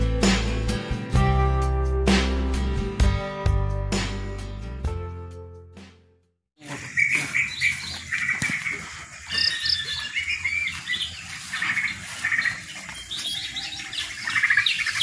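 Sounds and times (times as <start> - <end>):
small birds chirping: 6.6 - 15.0.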